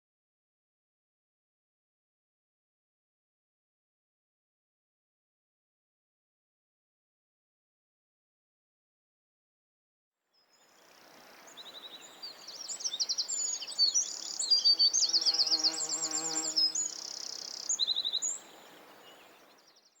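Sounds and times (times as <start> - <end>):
small birds chirping and trilling: 10.4 - 20.0.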